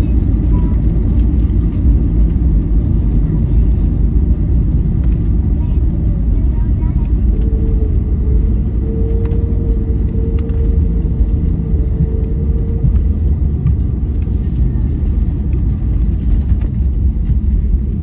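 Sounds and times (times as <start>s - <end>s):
airplane cabin rumble: 0.0s - 18.0s
steady mid-pitched tone: 7.0s - 14.1s.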